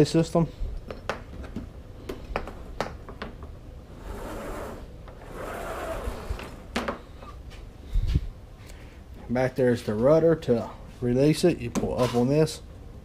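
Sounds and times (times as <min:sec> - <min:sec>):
rubbing sliding sounds: 0:04.0 - 0:06.6.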